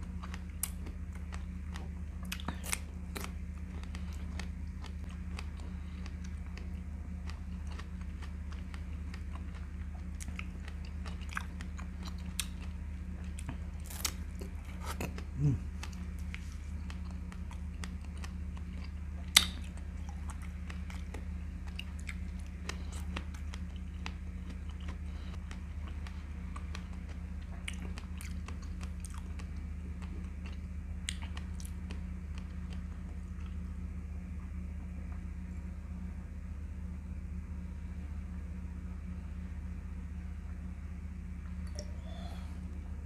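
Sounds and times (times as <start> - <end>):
person chewing strawberries: 0.0 - 33.8
low hum: 0.0 - 43.0.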